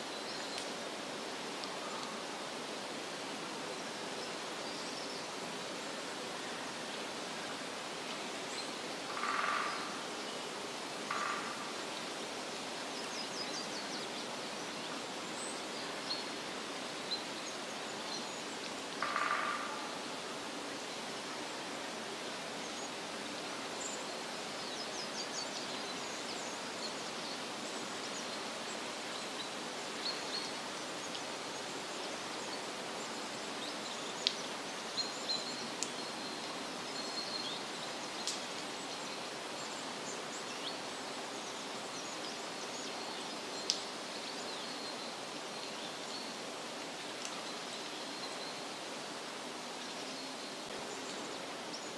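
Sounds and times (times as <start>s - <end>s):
steady rushing hiss: 0.0s - 51.9s
low pulsed croaking call: 11.1s - 11.6s.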